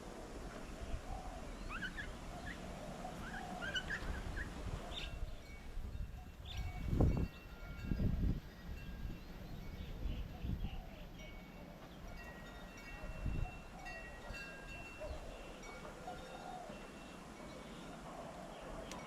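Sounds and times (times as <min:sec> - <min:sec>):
small birds chirping: 0:00.6 - 0:07.6.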